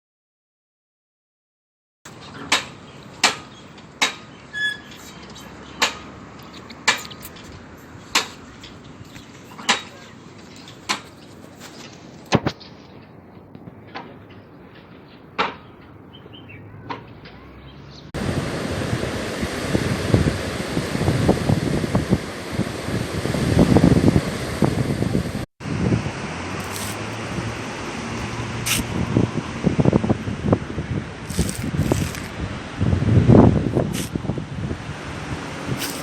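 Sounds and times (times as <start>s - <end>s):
short squeak: 4.5s - 5.5s
wind on microphone: 18.2s - 36.0s.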